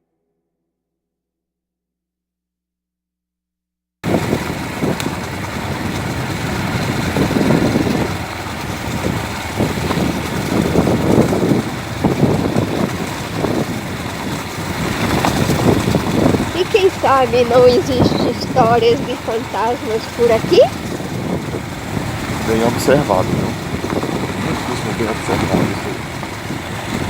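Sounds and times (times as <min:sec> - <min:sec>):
road rumble: 0:04.0 - 0:27.0
vehicle engine running: 0:04.0 - 0:27.0
wind: 0:04.0 - 0:27.0.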